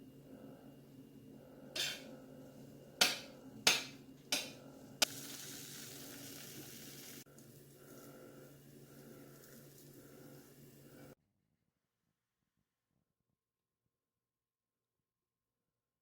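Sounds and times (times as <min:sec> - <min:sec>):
steady hiss: 0:05.0 - 0:11.2.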